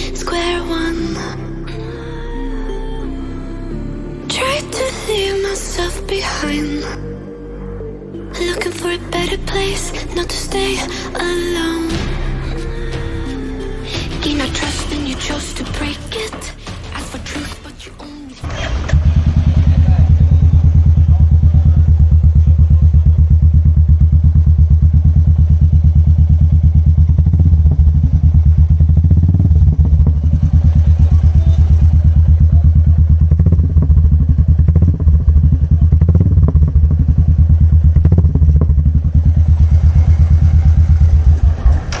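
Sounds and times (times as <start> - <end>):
exhaust pops: 18.5 - 42.0
motorcycle engine idling: 18.5 - 42.0.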